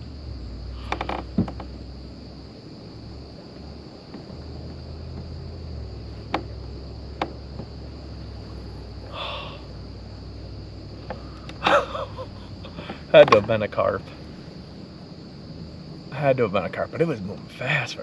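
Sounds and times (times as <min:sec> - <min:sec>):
insects droning high-pitched: 0:00.0 - 0:18.0.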